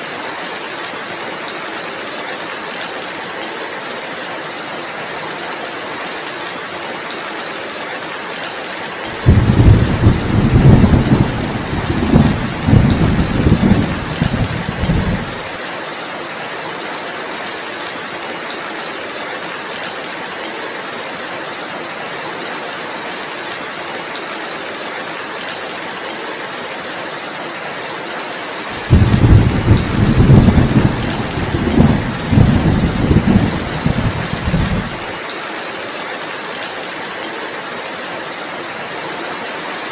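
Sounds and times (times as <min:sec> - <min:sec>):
heavy rain: 0:00.0 - 0:39.9
thunder rumbling: 0:09.2 - 0:15.5, 0:28.8 - 0:35.1.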